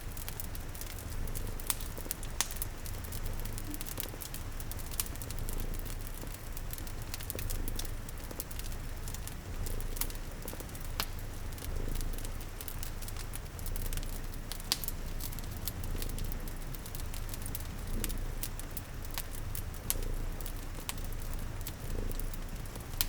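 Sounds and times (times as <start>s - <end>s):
fireplace crackling and popping: 0.0s - 23.0s
rain patter: 0.0s - 23.0s
cat purring: 0.1s - 23.0s.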